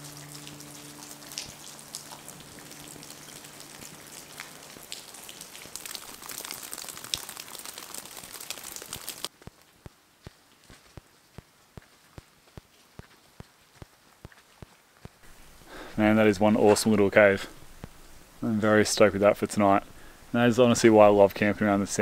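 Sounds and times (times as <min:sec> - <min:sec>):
raindrops ticking on leaves: 0:00.0 - 0:15.8
steady rain pattering: 0:00.0 - 0:22.0
footsteps on dirt track: 0:09.3 - 0:15.2.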